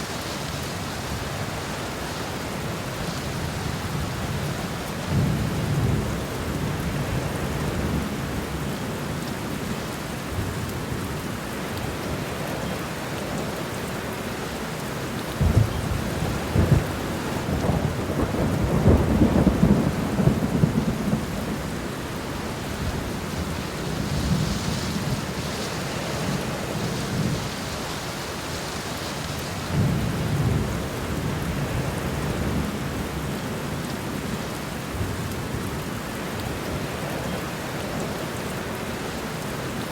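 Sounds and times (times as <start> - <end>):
steady rain: 0.0 - 39.9
rolling thunder: 15.4 - 21.9.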